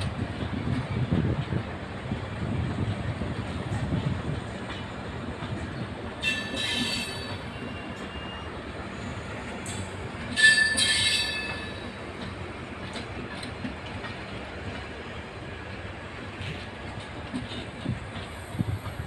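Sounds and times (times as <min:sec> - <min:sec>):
train wheels rumbling on rails: 0:00.0 - 0:19.0
high-pitched wheel squeal: 0:06.2 - 0:08.5, 0:10.4 - 0:11.8.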